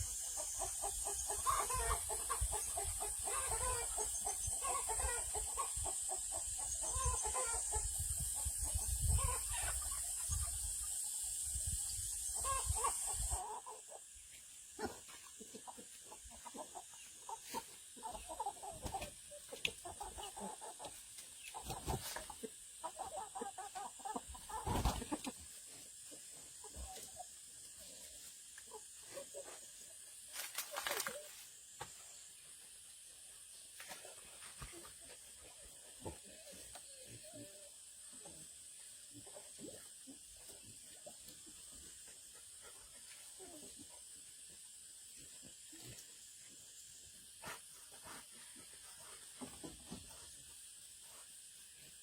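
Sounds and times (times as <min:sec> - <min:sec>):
chickens clucking: 0:00.0 - 0:51.3
steady high hiss: 0:00.0 - 0:52.0.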